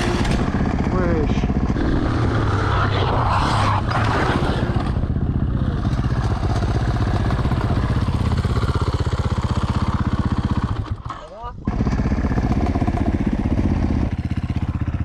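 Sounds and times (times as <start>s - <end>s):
motorcycle engine idling: 5.1s - 15.0s.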